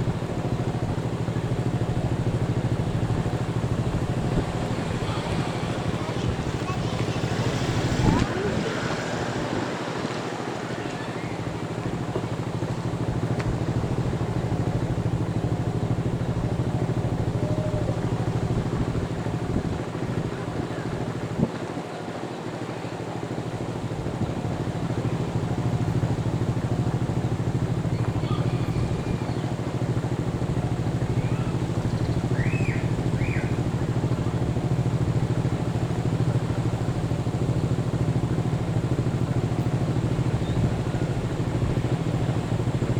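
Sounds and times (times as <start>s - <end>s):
low engine rumble: 0.0s - 42.9s
faint high chirps: 10.7s - 11.8s.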